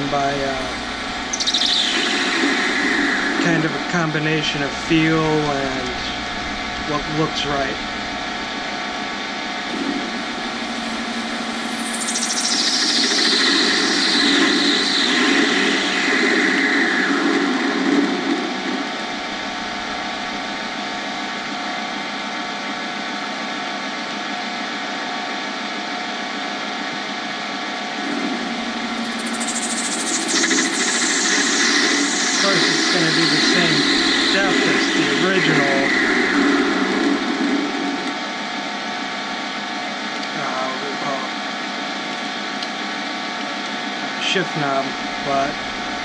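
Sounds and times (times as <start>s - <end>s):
lathe tool cutting with whine: 9.6s - 20.8s, 28.0s - 38.4s
lathe humming: 28.0s - 38.2s.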